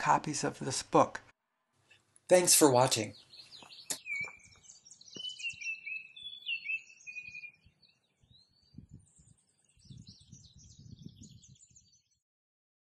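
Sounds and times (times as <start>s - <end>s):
songbirds chirping and whistling: 3.0s - 12.2s.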